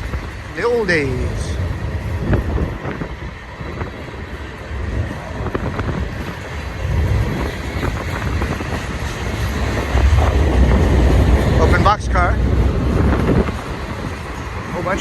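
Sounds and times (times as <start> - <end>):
freight train rumbling past: 0.0 - 15.0
wind buffeting microphone: 0.0 - 15.0.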